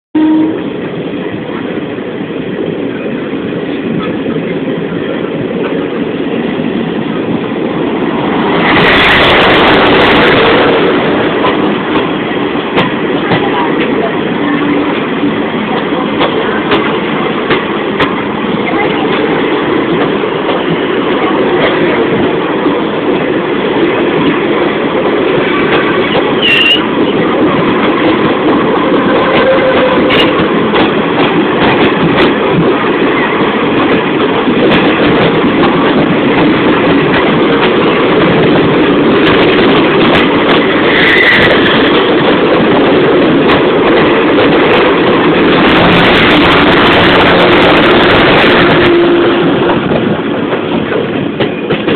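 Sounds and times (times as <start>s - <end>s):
train rumbling on rails: 0.1s - 51.9s
high wheel squeals: 26.4s - 26.9s.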